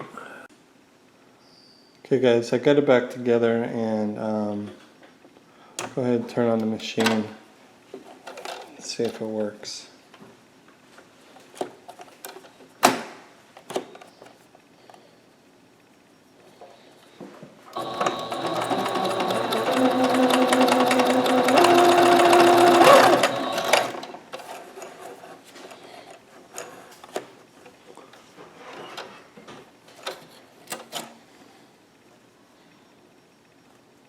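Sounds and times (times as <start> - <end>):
sewing machine stitching: 17.7 - 24.6.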